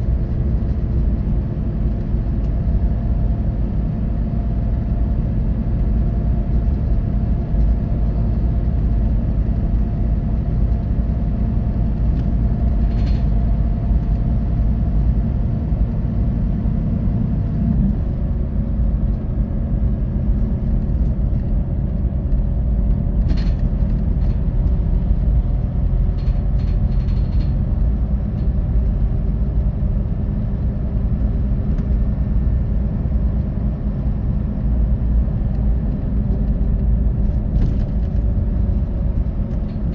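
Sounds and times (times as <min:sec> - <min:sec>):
coach engine and road rumble: 0:00.0 - 0:39.9
brief clicks and rattles: 0:26.1 - 0:27.6.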